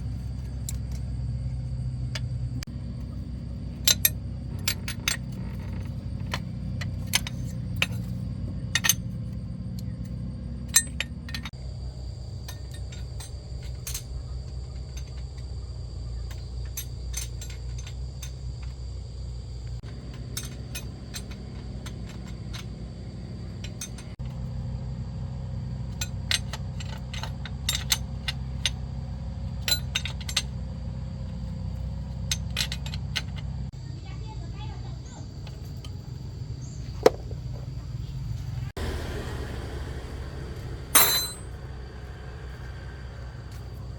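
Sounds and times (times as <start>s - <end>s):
low machine hum: 0.0s - 43.9s
metal tools clinking: 2.1s - 11.6s, 12.3s - 24.5s, 25.8s - 33.7s, 40.9s - 41.8s.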